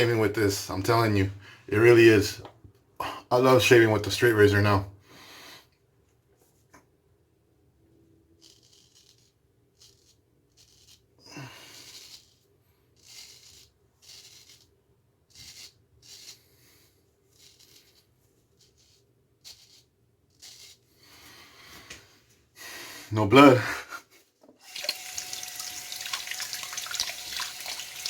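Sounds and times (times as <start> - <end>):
straight razor scraping stubble: 8.4 - 21.2.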